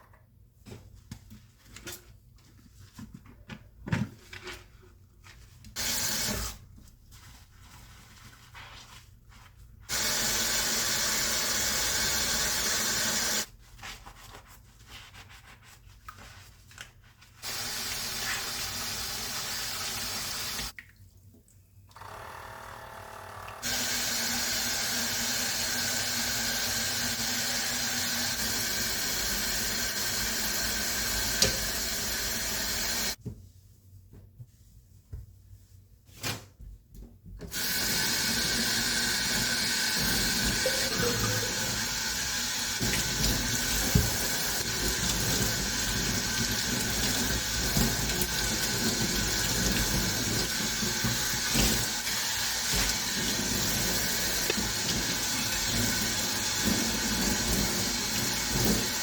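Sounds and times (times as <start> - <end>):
tap water running into sink: 17.4 - 20.9, 23.5 - 33.2, 37.5 - 59.0.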